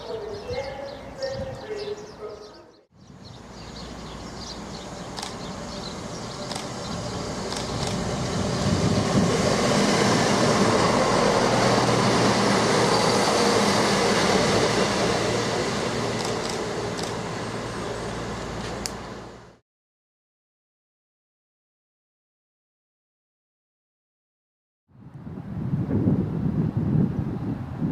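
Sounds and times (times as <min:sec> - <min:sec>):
train passing: 0:00.0 - 0:19.6
sharp clicks: 0:05.2 - 0:05.4, 0:06.5 - 0:06.7, 0:07.5 - 0:08.0, 0:16.2 - 0:17.2.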